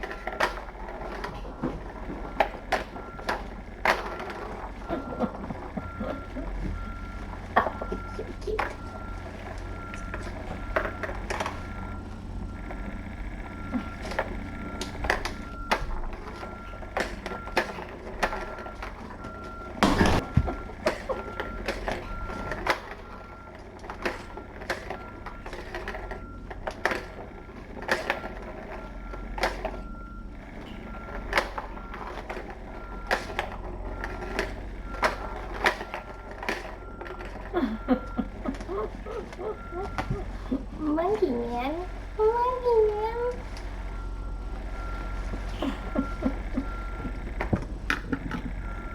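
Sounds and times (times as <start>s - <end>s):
low hum: 0.0s - 48.9s
toys and paws tapping: 0.0s - 48.9s
loud thump: 19.8s - 20.6s.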